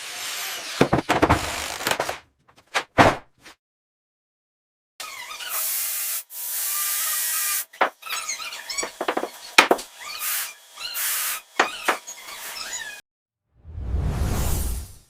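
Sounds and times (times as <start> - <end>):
sharp knocks and clicks: 8.8 - 9.9.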